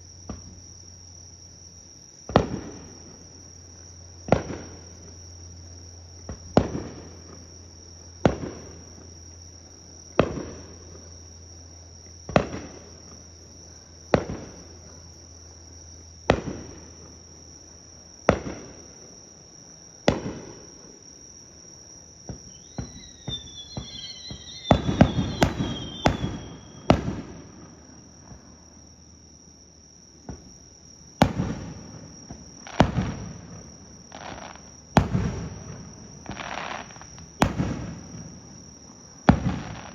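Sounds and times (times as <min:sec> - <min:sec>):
insect chirring: 0:00.0 - 0:39.9
fireworks bursting: 0:22.2 - 0:28.6, 0:31.2 - 0:39.9
fireworks crackling: 0:22.3 - 0:28.4, 0:31.2 - 0:38.5, 0:39.3 - 0:39.9.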